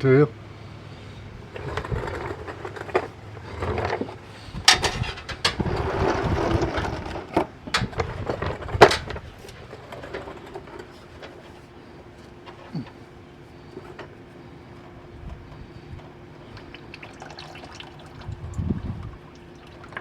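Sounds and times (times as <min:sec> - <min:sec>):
metallic knocks and clanks: 0:04.6 - 0:05.8.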